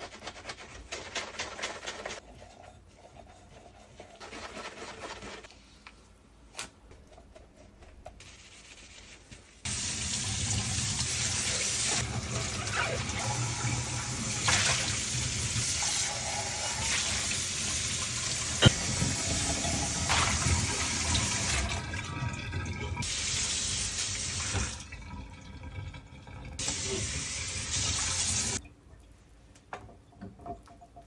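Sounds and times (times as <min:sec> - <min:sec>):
water running from tap into sink: 0:09.7 - 0:28.6.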